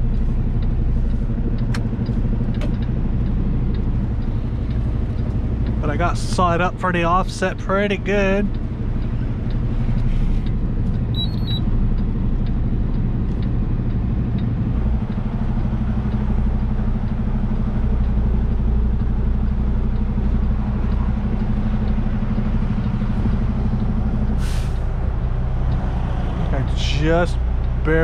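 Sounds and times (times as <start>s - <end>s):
truck diesel engine drone: 0.0s - 28.0s
short electronic beep: 11.1s - 11.7s.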